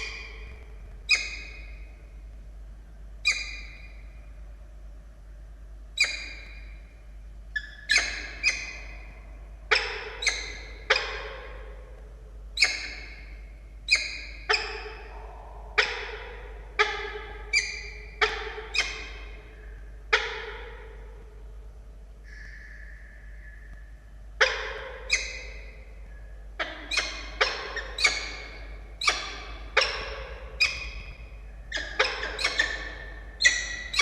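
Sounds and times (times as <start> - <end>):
falcon calling: 3.2 - 4.0, 7.6 - 11.7, 22.3 - 34.0.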